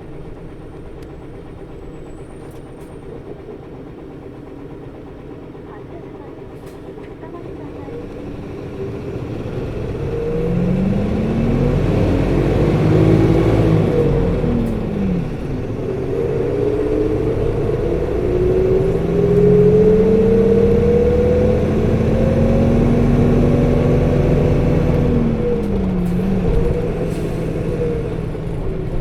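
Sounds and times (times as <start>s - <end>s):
bus engine accelerating: 0.0s - 29.0s
engine fan whirring: 7.2s - 29.0s.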